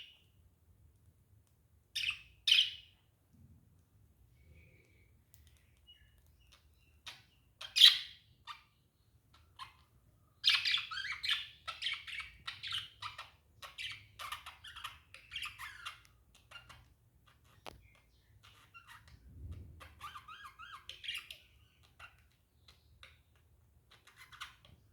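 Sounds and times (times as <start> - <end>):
budgerigars chirping: 2.0 - 2.9, 5.8 - 8.7, 9.4 - 19.1.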